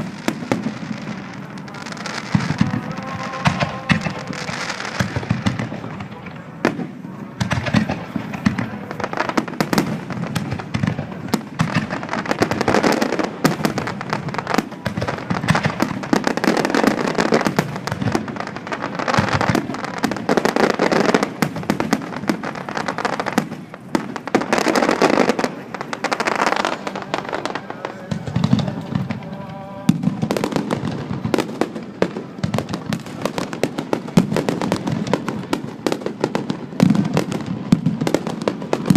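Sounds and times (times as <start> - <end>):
fireworks bursting and crackling: 0.0 - 38.9.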